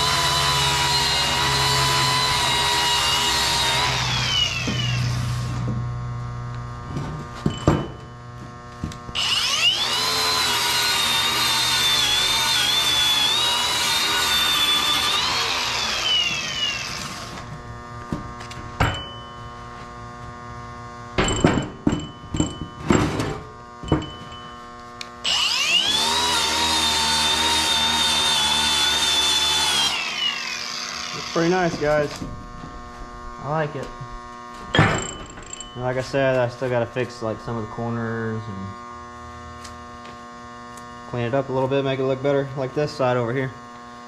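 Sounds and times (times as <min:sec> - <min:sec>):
electric grinder whining: 0:00.0 - 0:07.4, 0:08.1 - 0:18.8, 0:23.4 - 0:34.7.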